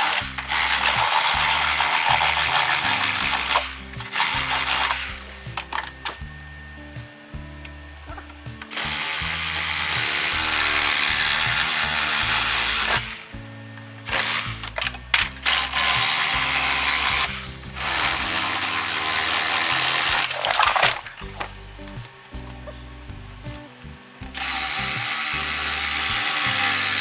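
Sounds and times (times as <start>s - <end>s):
bamboo cracking and snapping: 0.0s - 6.3s, 14.0s - 22.8s
background music: 0.0s - 27.0s
electric chainsaw cutting bamboo: 0.0s - 27.0s.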